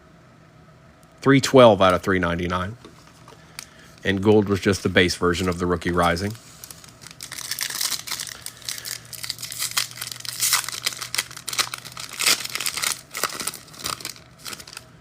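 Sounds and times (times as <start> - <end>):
foil wrapper tearing and crinkling: 5.3 - 14.9.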